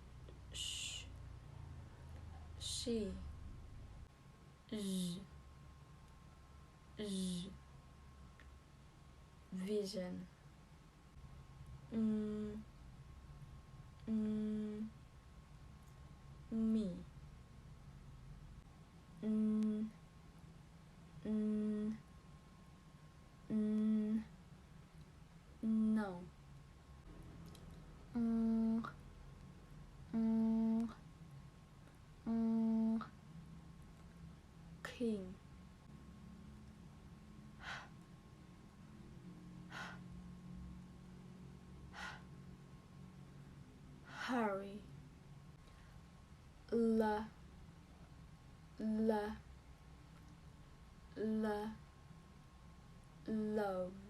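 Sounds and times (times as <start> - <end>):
woman humming: 11.9 - 12.6, 14.0 - 14.9, 19.2 - 20.0, 21.2 - 22.0, 23.5 - 24.3, 25.6 - 26.2, 28.1 - 29.0, 30.1 - 31.0, 32.2 - 33.1.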